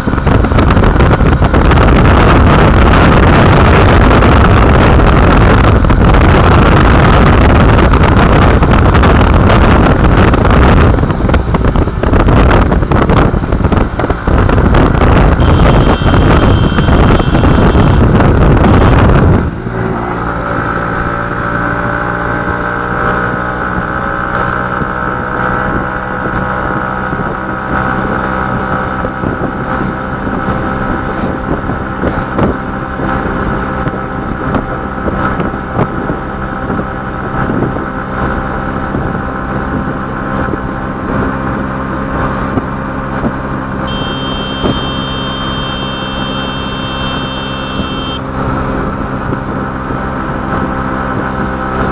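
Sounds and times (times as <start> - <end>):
wind buffeting microphone: 0.0 - 19.9
vehicle engine running: 0.0 - 23.5, 41.0 - 51.9
high-pitched tone: 15.4 - 18.0, 43.9 - 48.2.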